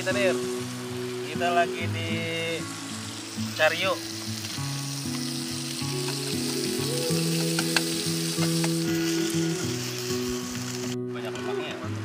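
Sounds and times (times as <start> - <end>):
food sizzling in grill pan: 0.0 - 11.6
background music: 0.0 - 12.0
chopsticks clicking: 7.4 - 8.8.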